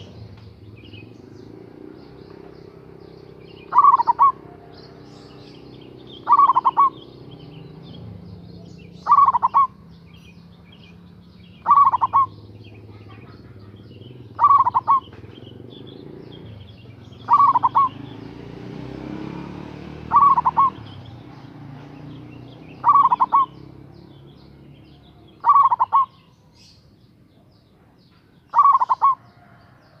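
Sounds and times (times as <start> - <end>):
dove cooing: 2.2 - 7.4, 8.8 - 9.8, 11.5 - 18.2, 20.0 - 23.8, 24.9 - 26.4, 28.5 - 29.8.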